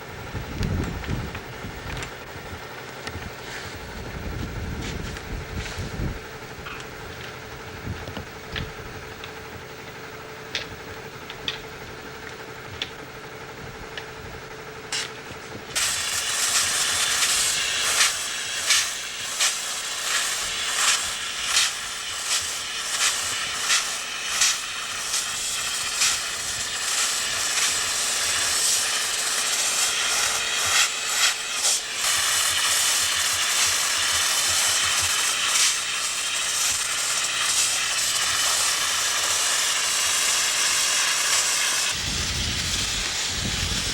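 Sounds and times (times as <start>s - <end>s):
pressurized air hiss: 15.8s - 43.9s.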